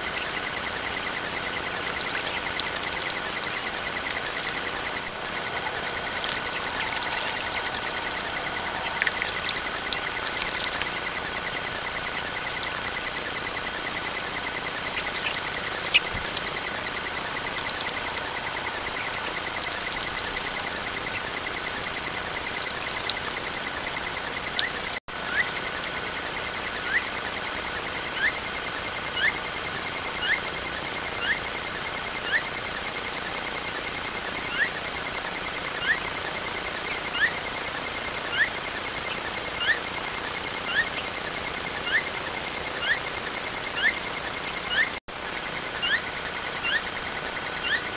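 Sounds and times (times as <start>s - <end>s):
faint bird chirps: 0.0s - 26.0s
steady hiss: 0.0s - 47.9s
bird whistling call: 1.3s - 23.5s.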